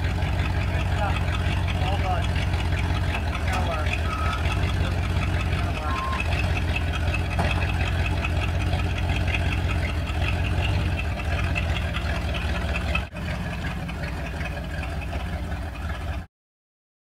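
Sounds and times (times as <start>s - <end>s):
truck engine rumbling: 0.0s - 16.3s.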